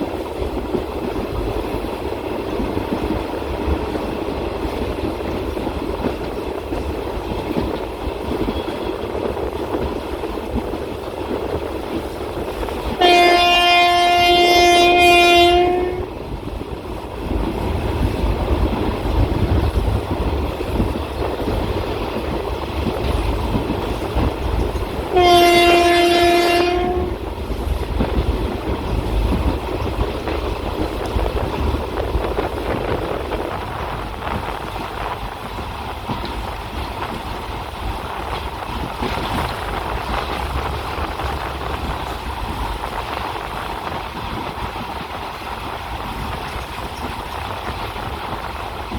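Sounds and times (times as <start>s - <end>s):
train rail noise: 0.0s - 48.9s
locomotive horn blasts: 13.0s - 16.2s, 25.1s - 27.2s.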